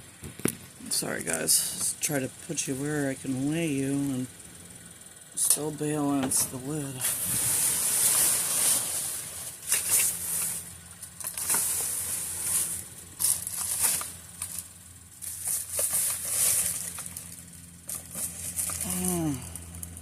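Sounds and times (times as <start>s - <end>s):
steady low hum: 0.0s - 20.0s
trash bags and boxes rustling: 6.3s - 19.6s.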